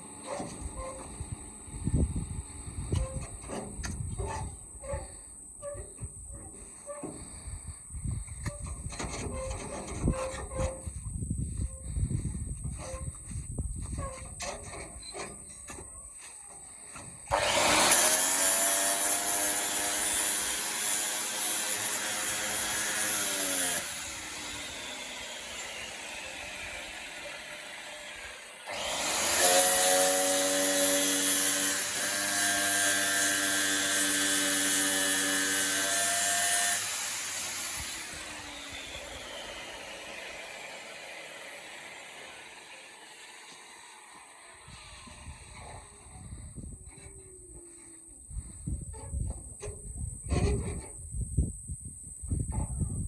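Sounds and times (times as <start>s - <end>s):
electric power tool whining: 17.3s - 46.0s.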